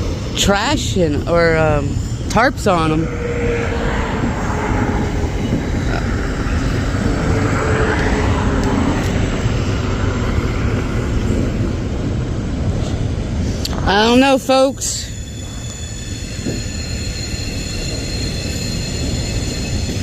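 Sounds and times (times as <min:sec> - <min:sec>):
loud vehicle roar: 0:02.3 - 0:13.0.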